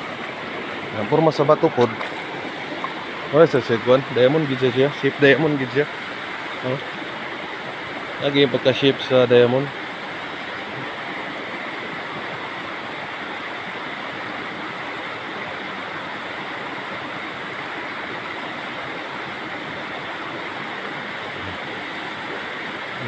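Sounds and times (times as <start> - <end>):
flowing stream water: 0.0 - 23.0.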